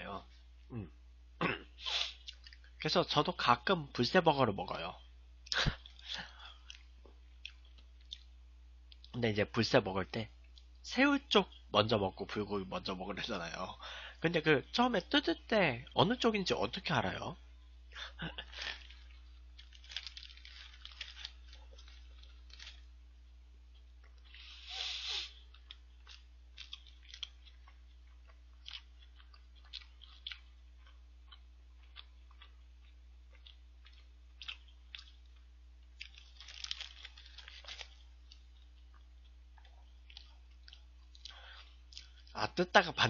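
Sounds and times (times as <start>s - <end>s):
person chewing food: 1.9s - 2.8s, 5.8s - 9.1s, 18.4s - 22.9s, 23.7s - 42.3s
loud crunches: 18.5s - 22.9s, 36.0s - 38.0s.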